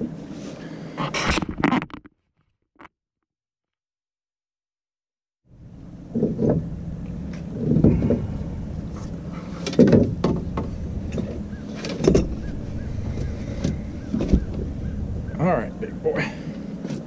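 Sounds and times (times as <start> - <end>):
steady low hum: 5.5 - 17.0
knocks and scuffling in metal boat: 5.9 - 15.4
loud thumps: 9.7 - 15.4.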